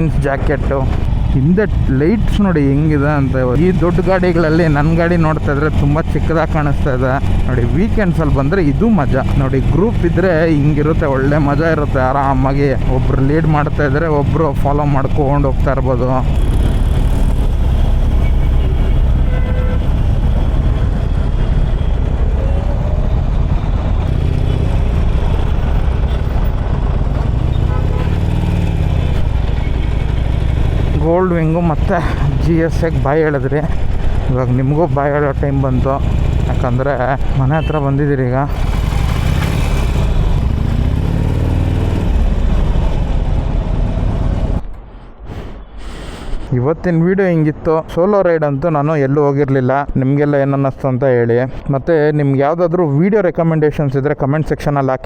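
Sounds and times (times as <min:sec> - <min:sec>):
road noise: 0:00.0 - 0:55.0
motorcycle engine running: 0:22.8 - 0:31.6, 0:35.1 - 0:37.8, 0:38.4 - 0:44.6.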